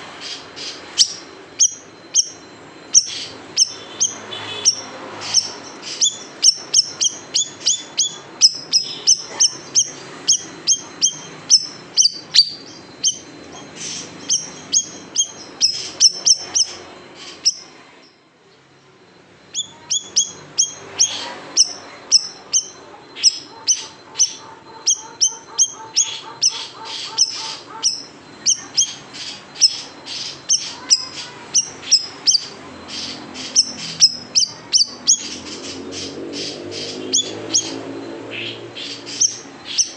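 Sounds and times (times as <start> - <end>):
songbird high sharp chirps: 0.2 - 18.2, 19.5 - 39.9.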